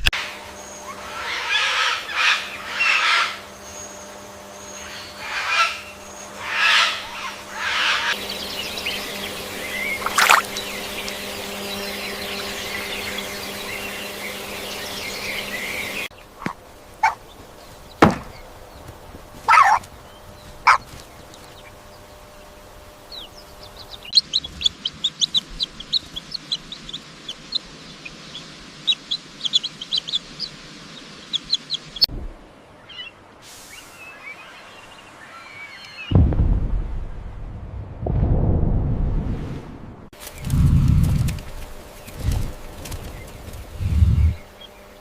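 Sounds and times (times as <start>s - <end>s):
buzzing hum: 0.0s - 33.4s, 36.1s - 45.0s
chicks peeping: 0.6s - 32.1s, 32.8s - 33.2s, 40.2s - 45.0s
loud poultry calls: 0.8s - 3.8s, 4.6s - 18.0s, 19.4s - 30.6s.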